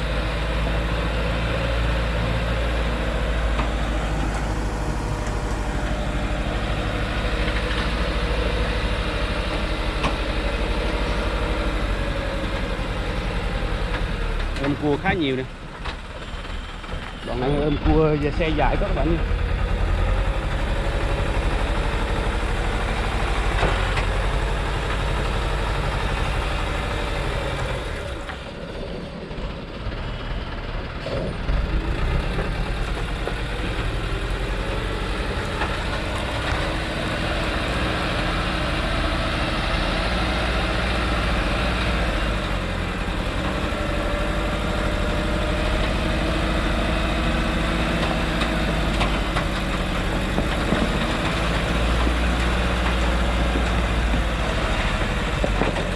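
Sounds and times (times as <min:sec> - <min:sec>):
truck diesel engine running: 0:00.0 - 0:55.9.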